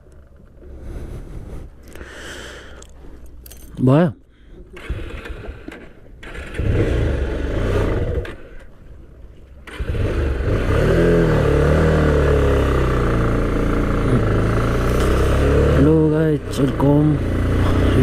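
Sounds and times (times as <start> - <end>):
motorcycle engine revving: 4.8 - 8.7, 9.6 - 18.0.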